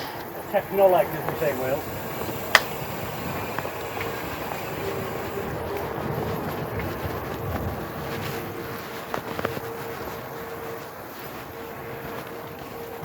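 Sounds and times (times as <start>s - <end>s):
hub motor whine: 0.0s - 13.0s
tyres and wind: 0.0s - 13.0s.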